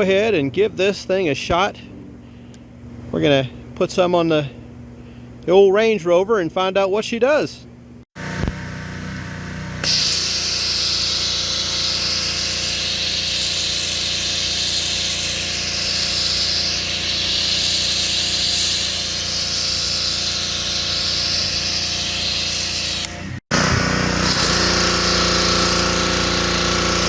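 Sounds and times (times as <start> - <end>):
pressure washer humming: 8.2 - 27.0
foam cannon spraying hiss: 9.8 - 27.0.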